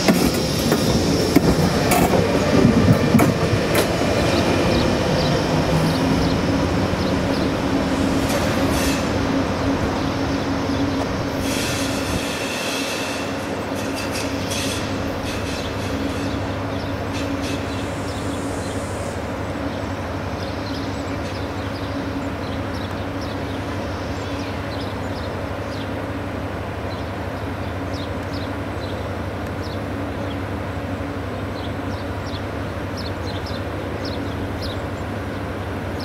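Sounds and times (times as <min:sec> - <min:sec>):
train hum and drone: 0:00.0 - 0:36.0.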